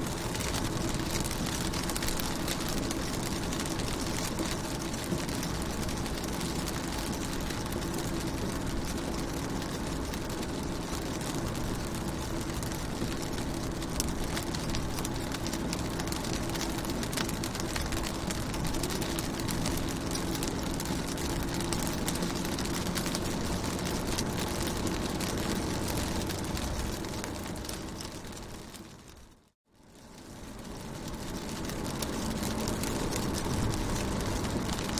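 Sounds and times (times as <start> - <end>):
rain on a car: 0.0 - 34.9.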